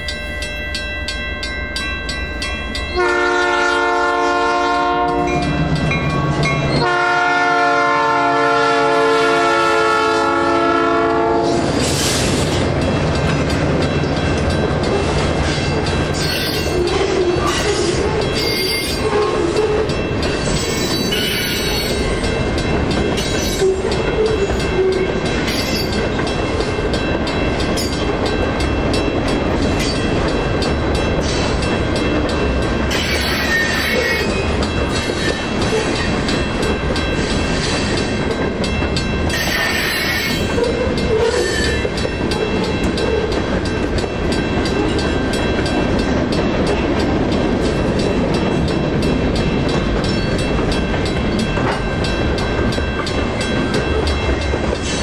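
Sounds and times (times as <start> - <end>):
crossing signal bell ringing: 0.0 - 7.9, 12.5 - 55.0
train wheels rumbling on rails: 0.0 - 55.0
wheel squeals: 16.2 - 19.8.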